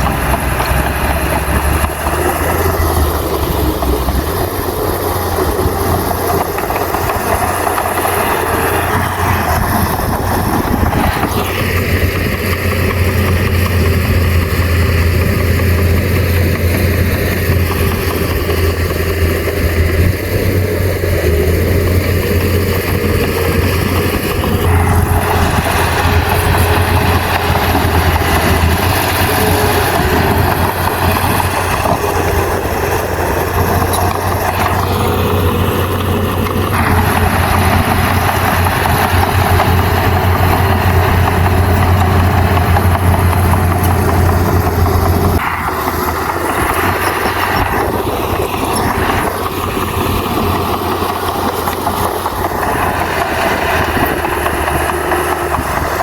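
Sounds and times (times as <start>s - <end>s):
heavy diesel engine running: 0.0s - 56.0s
loud rough machine noise: 0.0s - 56.0s.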